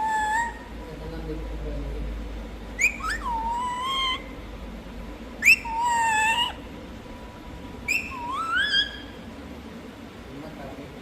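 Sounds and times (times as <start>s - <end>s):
parrot whistling calls: 0.0s - 0.7s, 2.8s - 4.4s, 5.4s - 6.7s, 7.8s - 9.3s.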